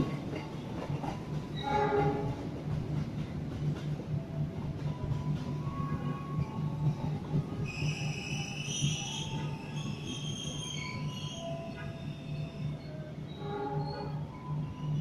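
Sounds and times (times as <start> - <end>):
wheels squealing on rails: 0.0 - 2.6, 3.8 - 15.0
train coaches rumbling past: 0.0 - 15.0.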